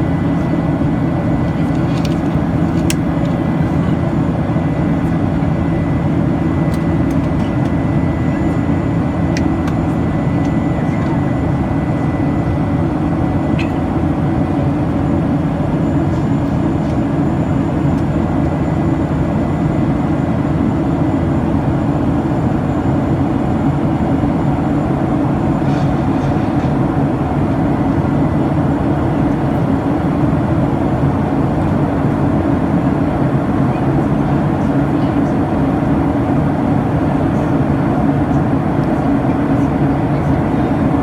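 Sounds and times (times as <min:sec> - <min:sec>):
jet engine roar inside cabin: 0:00.0 - 0:41.0.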